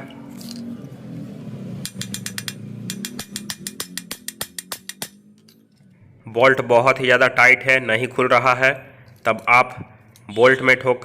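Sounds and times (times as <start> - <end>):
ratchet handle clicking: 1.8 - 5.6.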